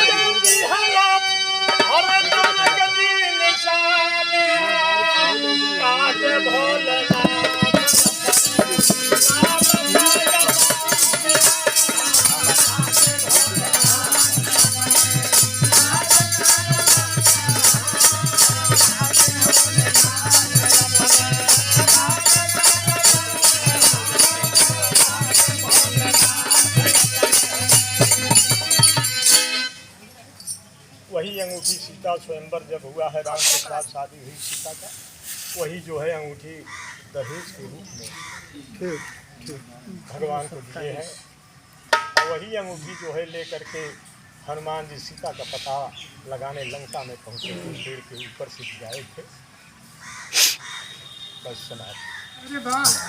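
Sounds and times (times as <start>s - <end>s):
jingling percussion beat: 0.0s - 3.2s, 7.1s - 29.8s, 41.9s - 42.5s, 52.5s - 53.0s
folk melody of held tones: 0.0s - 30.2s
drum strokes: 7.1s - 29.7s, 41.9s - 42.4s.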